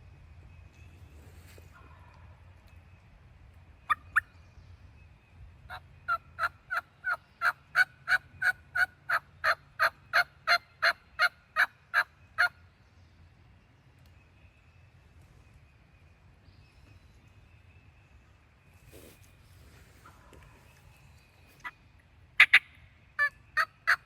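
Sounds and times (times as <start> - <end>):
turkey yelps: 6.1 - 12.5, 22.4 - 24.0.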